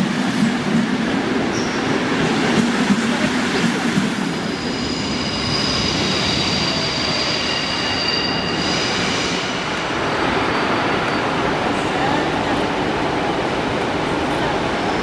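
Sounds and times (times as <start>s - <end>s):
rumble of train wheels on rails: 0.0s - 15.0s
high-pitched wheel squeal: 4.7s - 9.2s.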